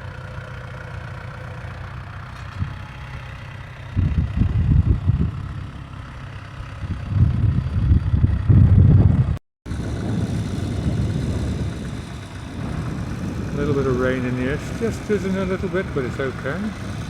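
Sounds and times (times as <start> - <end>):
tractor engine running: 0.0 - 17.0
wind buffeting microphone: 3.8 - 5.8, 6.5 - 17.0.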